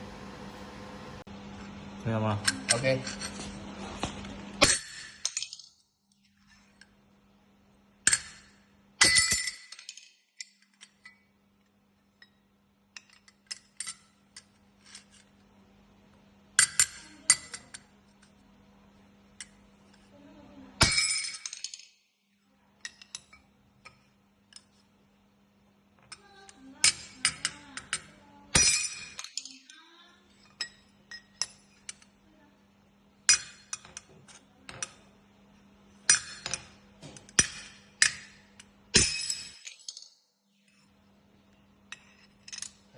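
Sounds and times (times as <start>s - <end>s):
steady low hum: 0.0s - 9.8s
metal pieces clinking: 4.6s - 5.8s, 8.1s - 11.2s, 20.8s - 22.0s, 26.1s - 32.1s, 36.1s - 40.2s, 41.9s - 42.8s.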